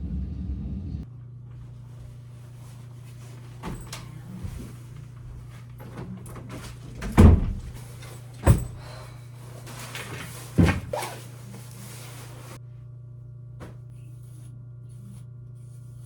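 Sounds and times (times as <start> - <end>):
low hum: 0.0 - 16.0
loud thuds of doors shutting: 3.6 - 9.0, 10.5 - 11.1.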